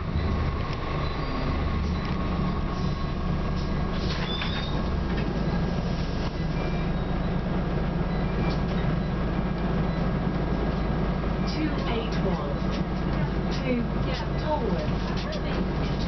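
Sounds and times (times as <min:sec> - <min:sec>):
bus diesel engine droning: 0:00.0 - 0:16.0.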